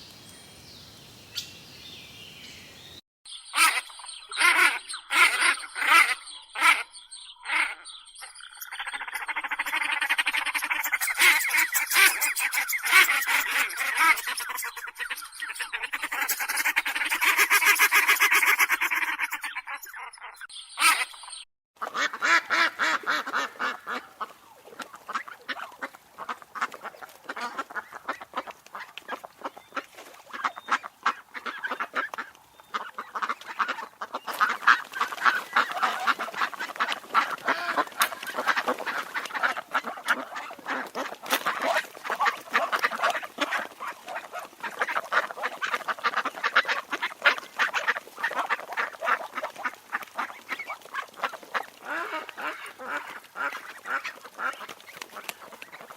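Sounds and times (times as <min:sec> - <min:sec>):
ducks quacking: 0:03.5 - 0:55.9.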